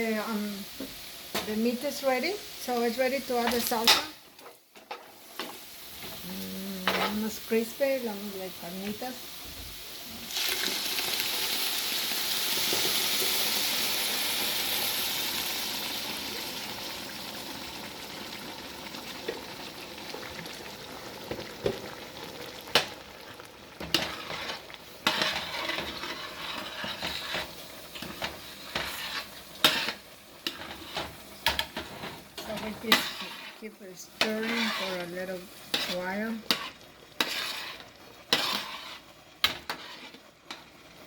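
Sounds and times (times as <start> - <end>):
sauce hissing in hot oil: 7.2 - 40.3
spoon scraping and knocking pot: 34.2 - 40.6.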